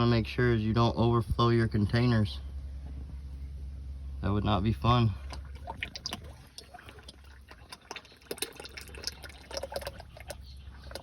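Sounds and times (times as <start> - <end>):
oil dripping into a pan: 5.2 - 11.0.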